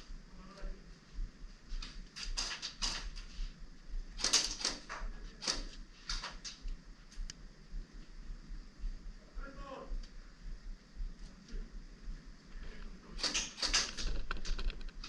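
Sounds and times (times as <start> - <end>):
airsoft guns firing: 4.2 - 5.7, 13.2 - 14.3.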